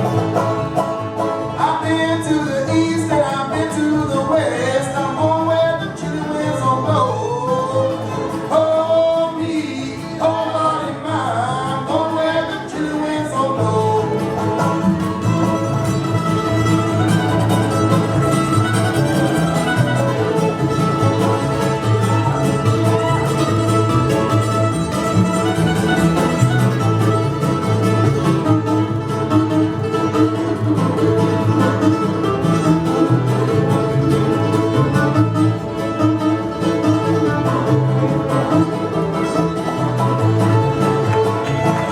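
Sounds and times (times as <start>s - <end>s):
string band with fiddle: 0.0s - 41.9s
person singing: 1.5s - 15.3s.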